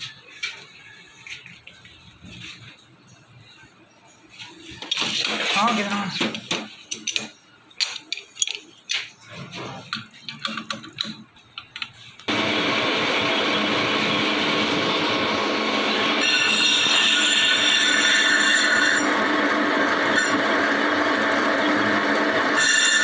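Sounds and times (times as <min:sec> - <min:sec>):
lathe cutting metal: 0:12.3 - 0:23.0.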